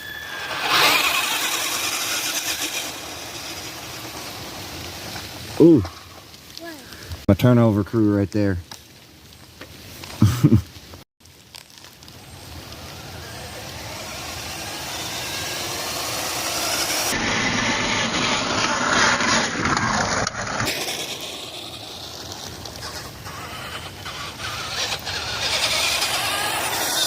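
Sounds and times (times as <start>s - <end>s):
electric motor and gearbox whine: 0.0s - 5.6s, 11.5s - 27.0s.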